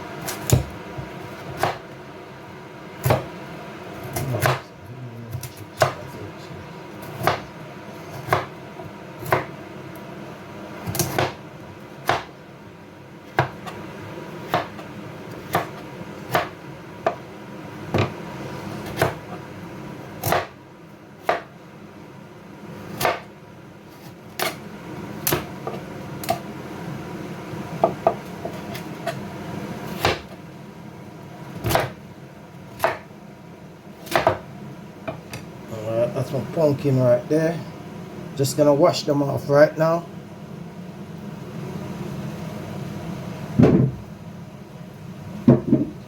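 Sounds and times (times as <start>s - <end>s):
knife chopping on cutting board: 0.2s - 1.8s, 3.0s - 3.3s, 4.1s - 4.6s, 5.3s - 6.0s, 7.0s - 7.5s, 8.1s - 8.5s, 9.2s - 9.6s, 10.8s - 11.4s, 12.0s - 12.3s, 13.3s - 13.8s, 14.5s - 14.8s, 15.4s - 17.2s, 17.9s - 18.2s, 18.8s - 19.4s, 20.2s - 20.6s, 21.2s - 21.5s, 23.0s - 23.3s, 24.0s - 24.6s, 25.2s - 26.4s, 30.0s - 30.4s, 31.6s - 32.0s, 32.7s - 33.1s, 34.0s - 34.5s.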